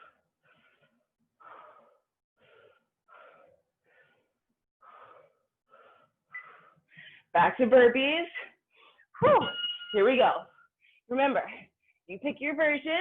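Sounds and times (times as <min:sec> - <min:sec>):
person breathing hard: 0:00.0 - 0:07.3.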